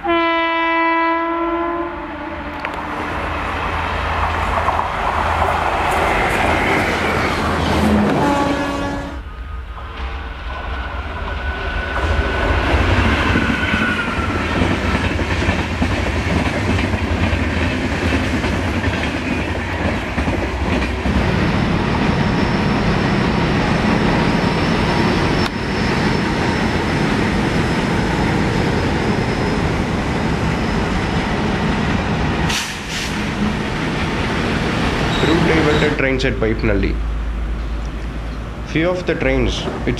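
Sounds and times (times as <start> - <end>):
train wheels rumbling on rails: 2.4 - 39.9
clickety-clack over rail joints: 4.1 - 8.8, 14.2 - 21.3, 39.5 - 39.9.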